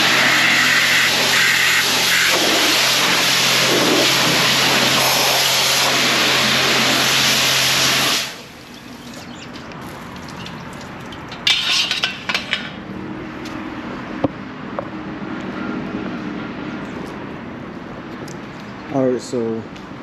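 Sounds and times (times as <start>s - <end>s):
pressure washer spraying water: 0.0s - 12.0s
water splashes: 1.0s - 12.0s.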